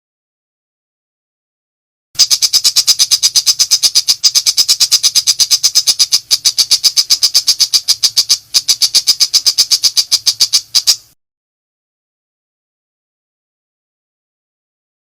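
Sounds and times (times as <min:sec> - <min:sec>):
shrike calling rapid high notes: 0:02.2 - 0:11.1.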